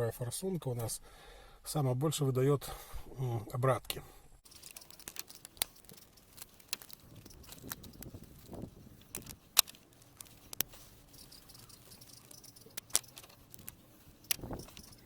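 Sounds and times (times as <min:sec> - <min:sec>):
metallic clicks of hand tools: 0:04.5 - 0:15.0.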